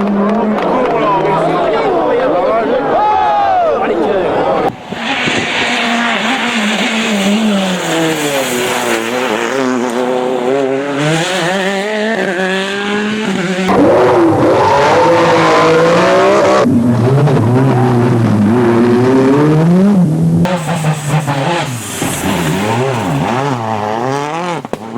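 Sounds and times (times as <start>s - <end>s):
rally car engines revving: 0.0s - 24.9s.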